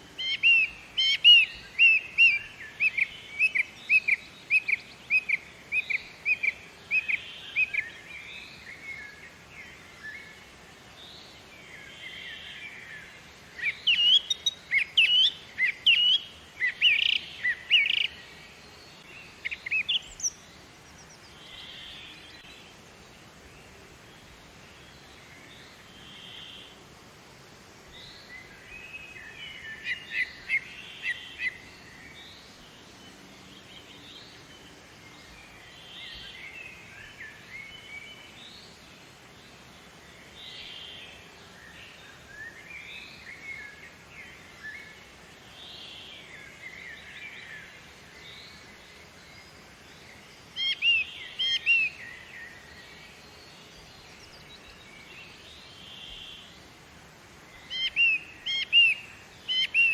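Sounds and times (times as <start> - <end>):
birds chirping and singing: 0.0 - 10.3, 11.1 - 22.6, 28.0 - 38.8, 40.2 - 56.5, 57.4 - 59.9
steady background noise: 0.0 - 59.9.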